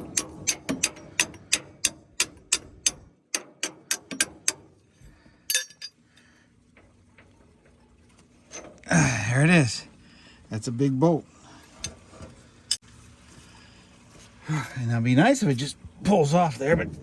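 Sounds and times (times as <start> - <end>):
metallic clink: 5.5 - 6.0.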